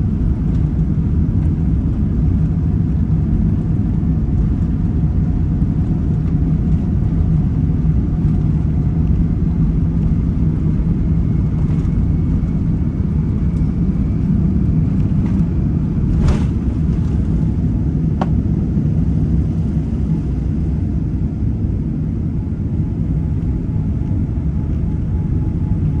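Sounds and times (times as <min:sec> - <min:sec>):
airplane engines rumbling: 0:00.0 - 0:26.0.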